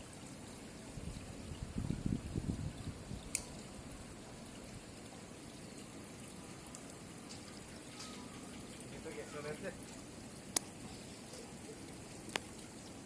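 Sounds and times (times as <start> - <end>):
faint water: 0.0 - 13.0.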